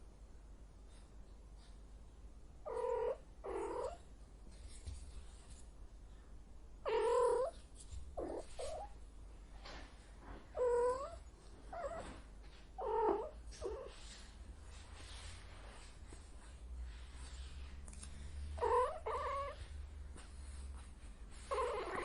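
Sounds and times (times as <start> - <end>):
cat meowing: 18.6 - 19.6.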